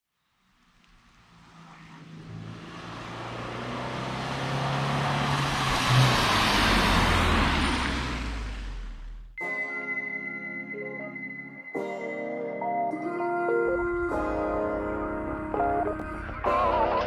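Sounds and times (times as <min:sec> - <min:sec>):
car driving past: 0:00.6 - 0:09.4.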